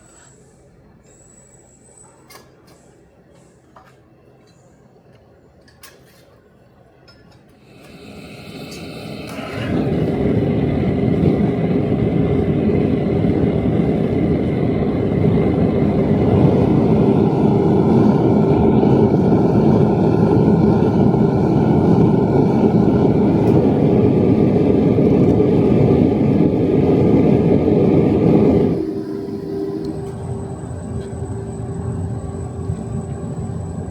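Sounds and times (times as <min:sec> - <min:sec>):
machine motor humming: 0:08.4 - 0:33.9.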